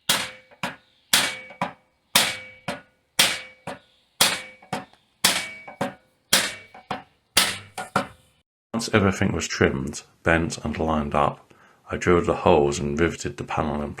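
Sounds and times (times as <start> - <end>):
hammer striking sheet metal: 0.0 - 8.2.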